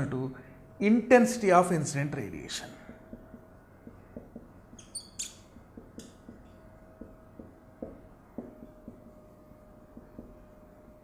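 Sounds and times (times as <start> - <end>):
faint steady hum: 0.0 - 11.0
short high squeaks of writing: 4.7 - 5.5.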